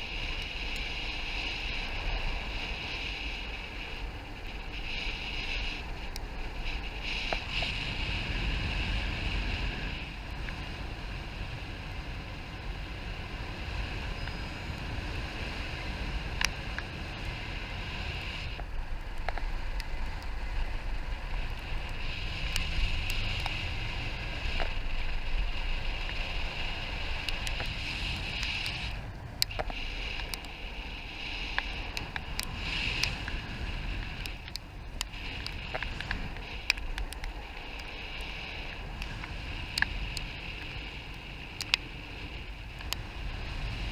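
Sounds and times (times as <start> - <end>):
sharp ticks: 0.0 - 7.8, 16.3 - 20.4, 21.2 - 43.9
wind rushing over microphone: 0.0 - 43.9.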